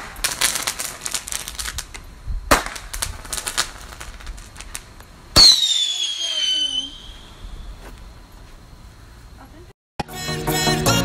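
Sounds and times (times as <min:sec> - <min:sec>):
fireworks bangs: 0:00.0 - 0:07.8
fireworks crackling pops: 0:00.0 - 0:08.5.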